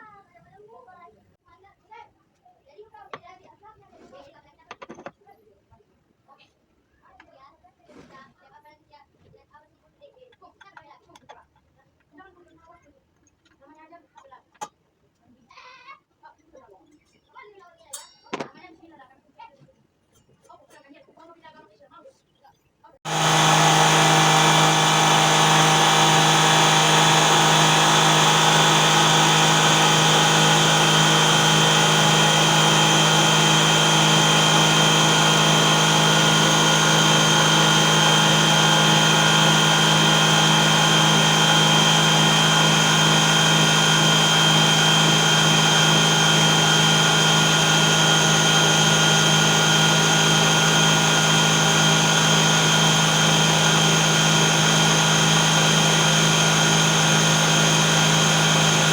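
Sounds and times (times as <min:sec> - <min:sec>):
table saw motor hum with whine: 0:23.1 - 0:58.9.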